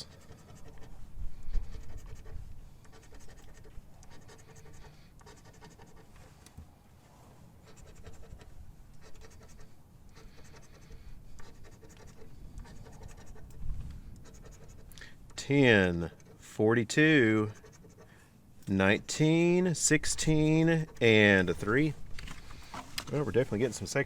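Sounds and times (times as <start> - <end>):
lottery ticket being scratched: 2.9 - 6.1, 14.3 - 18.1, 19.2 - 24.0.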